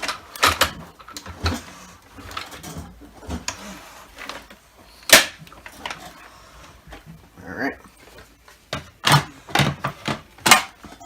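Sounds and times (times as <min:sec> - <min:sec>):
vacuum cleaner plastic parts clicking: 0:00.0 - 0:06.2.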